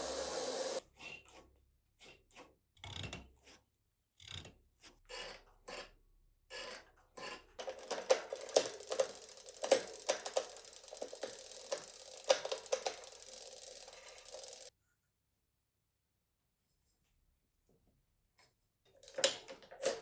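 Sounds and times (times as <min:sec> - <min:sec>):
steady hiss: 0:00.0 - 0:00.8.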